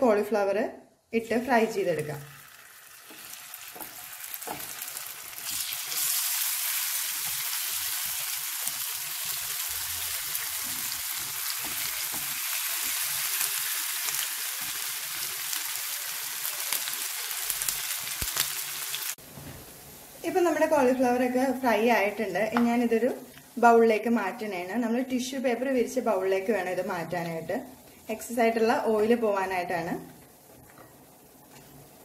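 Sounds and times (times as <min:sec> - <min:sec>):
food sizzling in hot oil: 0:01.4 - 0:23.7.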